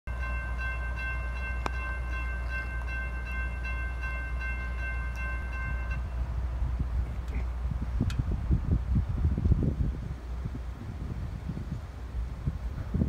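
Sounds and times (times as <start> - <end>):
crossing bell ringing: 0.1 - 6.6.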